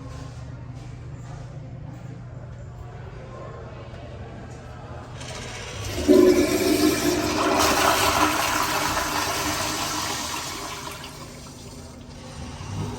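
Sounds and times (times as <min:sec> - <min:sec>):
toilet flushing: 0:05.2 - 0:12.9.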